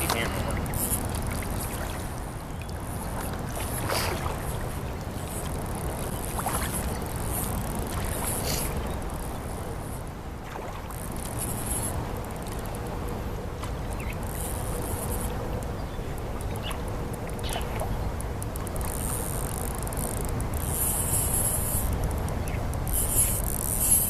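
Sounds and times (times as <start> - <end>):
footsteps sloshing through water: 0.0 - 9.2.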